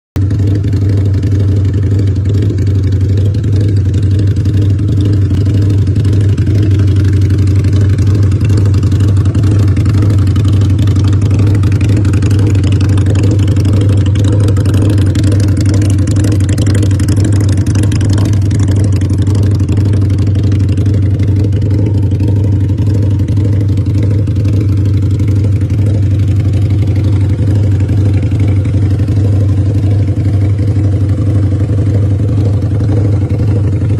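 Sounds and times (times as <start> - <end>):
motorcycle engine running: 0.2 - 33.9.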